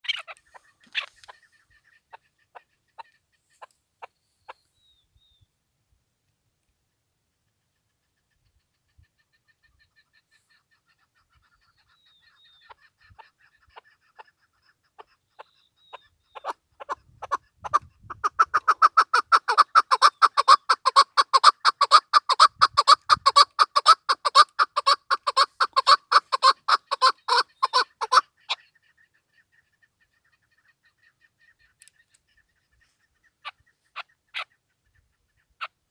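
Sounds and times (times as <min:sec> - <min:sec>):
sharp bird clucking notes: 0:00.0 - 0:04.6, 0:08.3 - 0:35.8
partridge calling: 0:00.0 - 0:05.0, 0:08.9 - 0:35.8.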